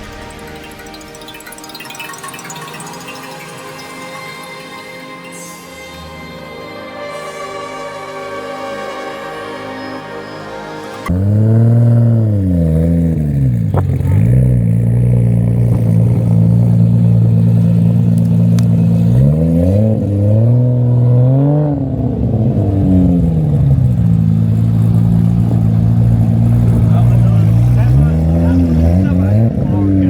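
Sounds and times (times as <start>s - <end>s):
car engine idling and revving: 7.6s - 30.0s.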